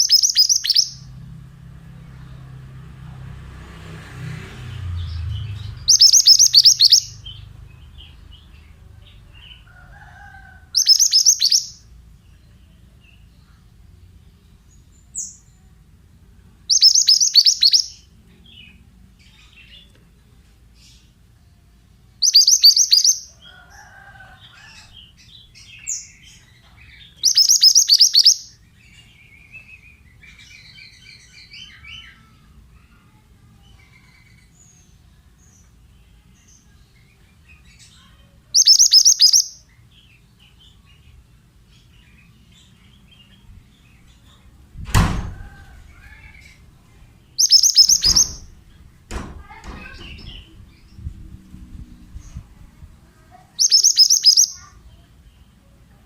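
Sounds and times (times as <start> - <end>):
bursts of high rapid chirping: 0.0 - 1.0, 5.8 - 7.4, 10.8 - 11.8, 16.7 - 18.0, 22.2 - 23.3, 27.2 - 28.5, 38.6 - 39.6, 47.3 - 48.5, 53.6 - 54.8
soft bird twittering: 0.0 - 1.1, 4.9 - 11.8, 16.7 - 20.0, 22.2 - 34.8, 36.4 - 39.8, 45.6 - 48.5, 53.3 - 55.1
dull thump: 44.8 - 45.5, 49.1 - 50.4.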